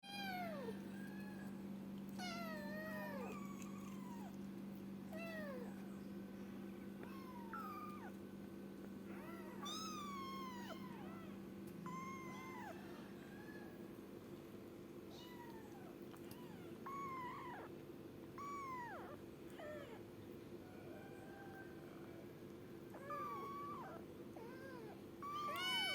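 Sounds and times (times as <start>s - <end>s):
kitten meowing: 7.0s - 8.2s, 9.1s - 11.2s, 15.2s - 17.7s, 18.4s - 20.0s, 23.0s - 25.9s.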